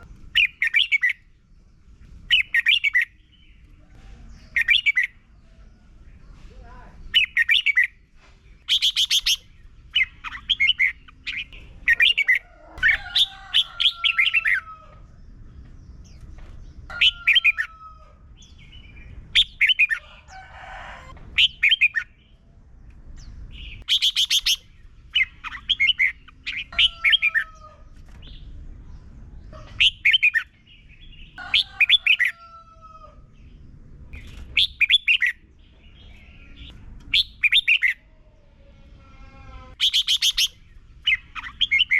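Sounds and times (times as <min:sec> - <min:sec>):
bulbul chirping song: 0:00.0 - 0:05.5, 0:07.1 - 0:08.0, 0:08.6 - 0:15.1, 0:18.4 - 0:20.0, 0:21.4 - 0:22.5, 0:23.2 - 0:32.4, 0:34.2 - 0:38.1, 0:39.8 - 0:41.9.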